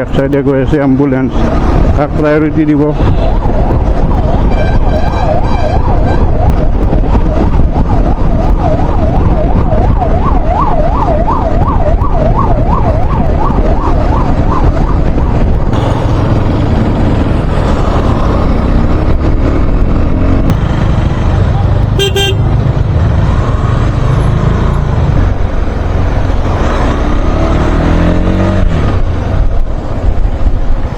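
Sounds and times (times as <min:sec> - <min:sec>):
road and wind rumble: 0:00.0 - 0:30.9
ambulance siren yelping: 0:03.3 - 0:15.2.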